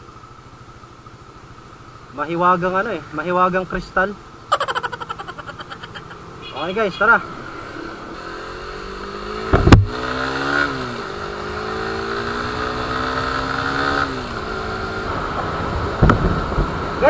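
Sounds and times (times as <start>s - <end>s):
motorcycle engine accelerating: 1.0s - 17.0s
sharp thump: 9.4s - 10.0s.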